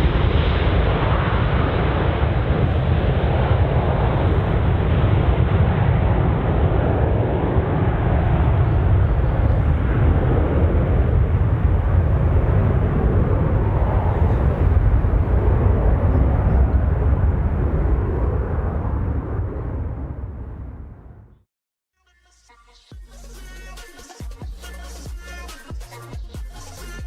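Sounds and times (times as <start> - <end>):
jet engines rumbling: 0.0 - 21.4.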